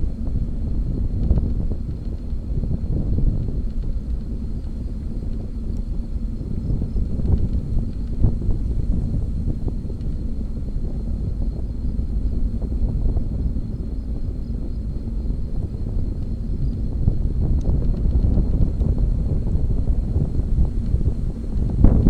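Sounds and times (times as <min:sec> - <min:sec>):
wind on microphone: 0:00.0 - 0:22.0.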